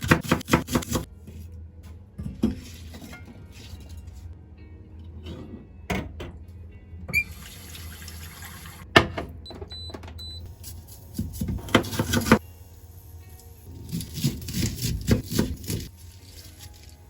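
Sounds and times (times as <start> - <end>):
tap water running: 7.1 - 8.8.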